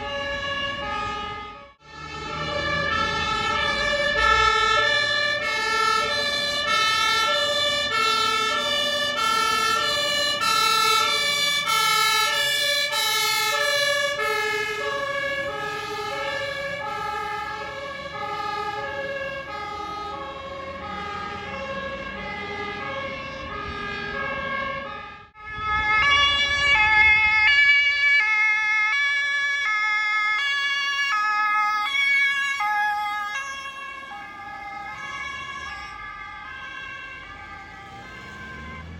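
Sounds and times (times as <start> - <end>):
two-tone sirens: 0.0 - 38.9
vehicle engine noise: 32.6 - 38.9.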